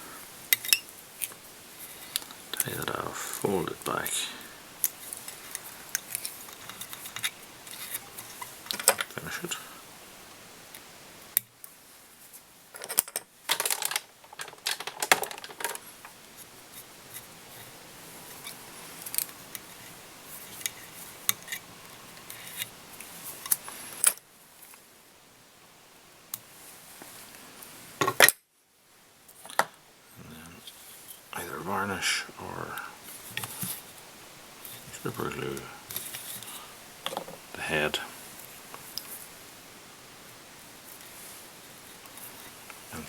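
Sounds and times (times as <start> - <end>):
small tools clicking and rustling: 0.5 - 2.8, 4.8 - 9.2, 12.7 - 17.7, 18.3 - 24.8.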